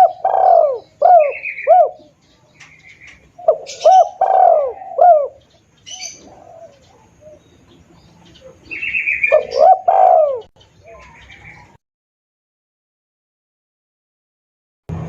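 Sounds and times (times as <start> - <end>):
dove cooing: 0.0 - 11.8.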